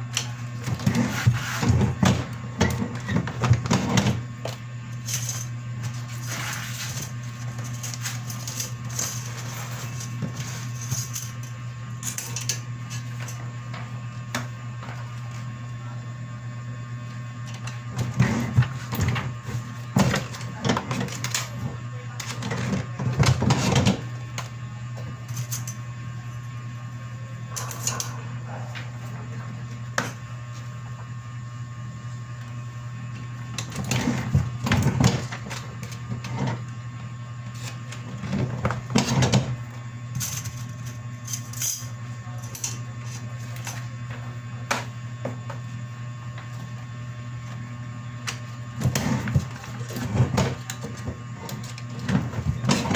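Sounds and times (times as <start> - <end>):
printer running: 17.3 - 25.2, 47.6 - 52.9.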